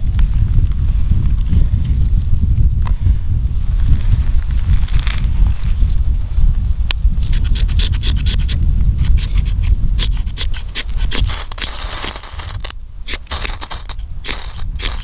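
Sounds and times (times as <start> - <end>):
steady low rumble: 0.0 - 15.0
knife scraping ferrocerium rod: 7.2 - 15.0.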